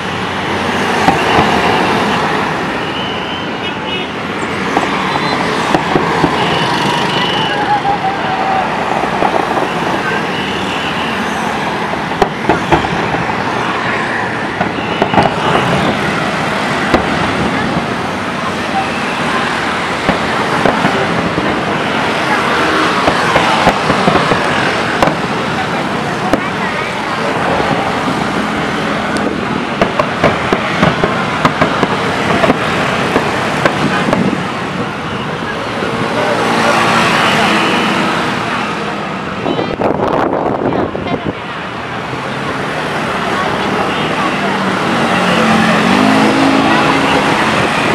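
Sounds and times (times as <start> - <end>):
rushing background noise: 0.0 - 47.9
fireworks popping: 14.6 - 16.0, 16.8 - 17.6, 20.0 - 21.6, 22.9 - 25.4, 29.2 - 34.4.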